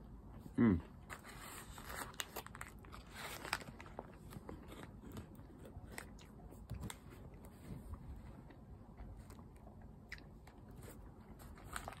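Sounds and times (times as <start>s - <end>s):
paper wrapper crinkling: 1.1s - 7.5s, 10.8s - 12.0s.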